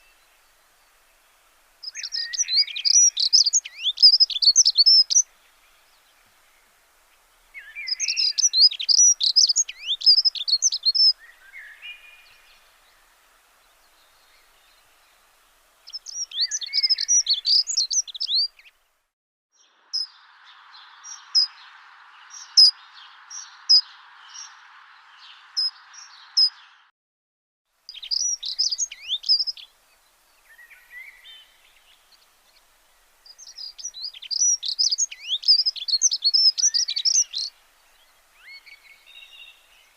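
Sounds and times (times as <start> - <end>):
steady hiss: 0.0 - 19.1, 27.8 - 39.9
songbird chirping and trilling: 0.0 - 26.9, 27.9 - 39.9.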